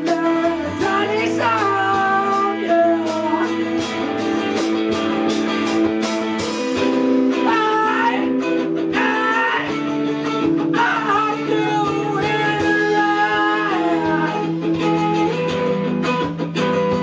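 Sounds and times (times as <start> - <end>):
drum and cymbal beat: 0.0 - 7.6
guitars with bending melody: 0.0 - 17.0.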